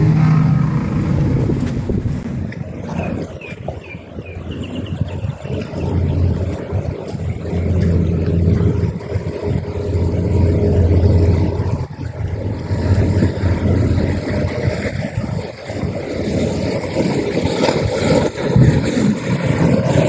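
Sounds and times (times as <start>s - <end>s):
outboard motors droning: 0.0s - 20.0s
rushing water noise: 0.0s - 20.0s.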